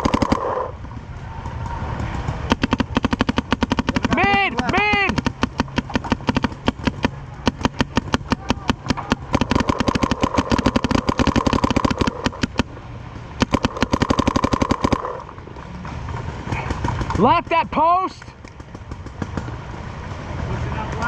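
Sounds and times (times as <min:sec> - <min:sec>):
paintball markers firing: 0:00.0 - 0:00.7, 0:01.5 - 0:12.7, 0:13.4 - 0:15.3
mechanical whir: 0:00.0 - 0:15.5.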